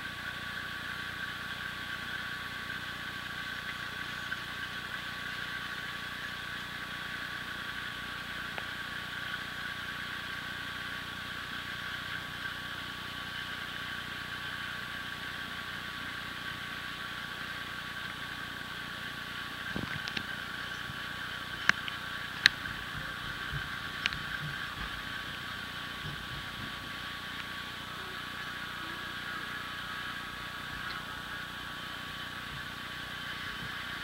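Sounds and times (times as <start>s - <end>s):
constant high-pitched tone: 0.0s - 34.0s.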